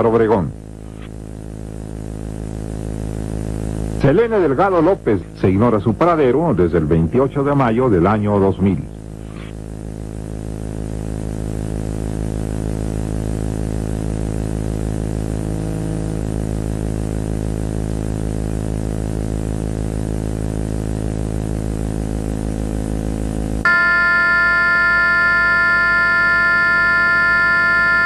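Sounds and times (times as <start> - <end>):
low droning hum: 8.8 - 28.0.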